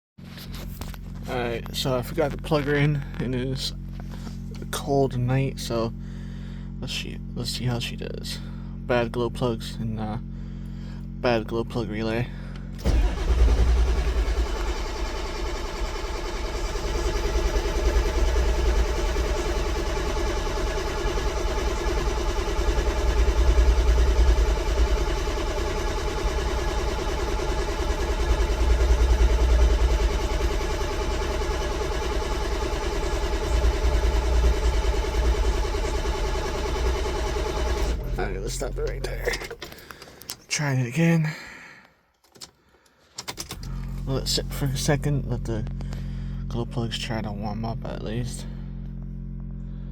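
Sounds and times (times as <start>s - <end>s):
diesel engine cranking on starter: 12.3s - 40.4s, 42.4s - 46.6s.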